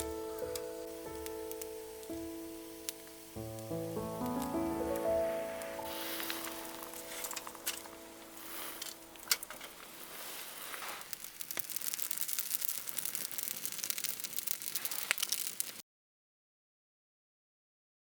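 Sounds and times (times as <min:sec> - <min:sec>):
faint background music: 0:00.0 - 0:09.7
campfire crackling: 0:00.0 - 0:15.8.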